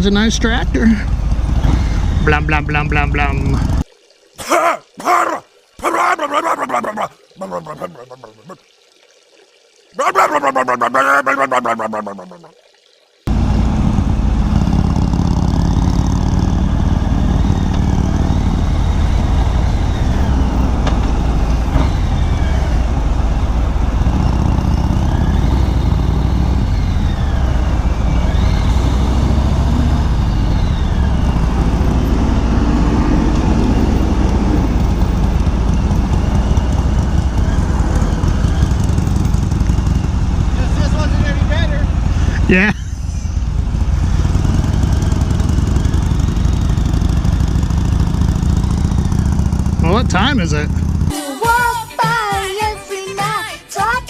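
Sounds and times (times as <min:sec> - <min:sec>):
motorcycle engine running: 0:00.0 - 0:03.8, 0:13.3 - 0:51.1.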